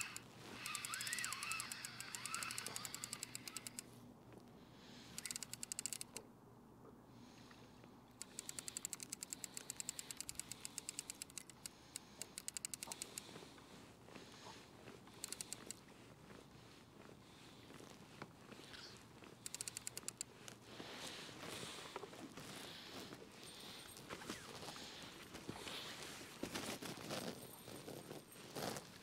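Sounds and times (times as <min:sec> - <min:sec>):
fishing reel gears clicking: 0:00.0 - 0:03.9, 0:05.1 - 0:06.2, 0:08.2 - 0:13.3, 0:15.2 - 0:15.8, 0:19.4 - 0:20.3.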